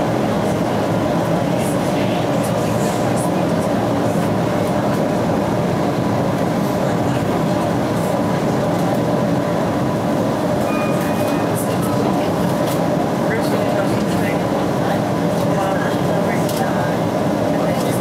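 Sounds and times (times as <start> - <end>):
train wheels on rails: 10.1 - 18.0
faint high tone: 10.6 - 12.2.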